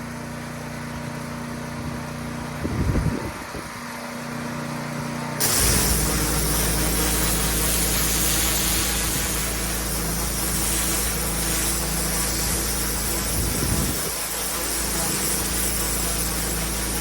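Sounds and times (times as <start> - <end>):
pressure washer engine hum: 3.8 - 17.0
high-pressure water spray hiss: 5.4 - 17.0.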